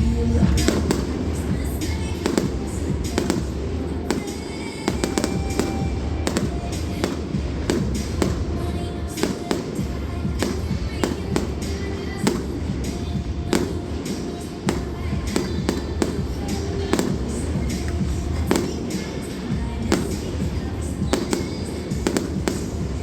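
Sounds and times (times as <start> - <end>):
fireworks bangs and crackling: 0.0 - 23.0
music playing: 0.0 - 23.0.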